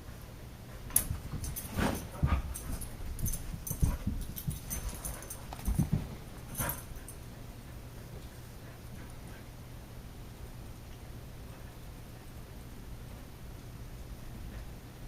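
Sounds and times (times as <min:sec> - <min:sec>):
scuffling thumps and paw clicks: 0:00.9 - 0:07.2.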